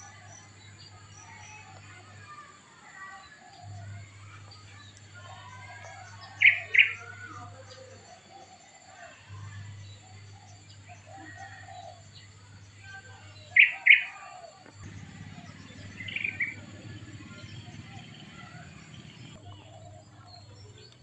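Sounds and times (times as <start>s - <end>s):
small birds chirping: 0.0s - 21.0s
low steady hum: 14.7s - 21.0s.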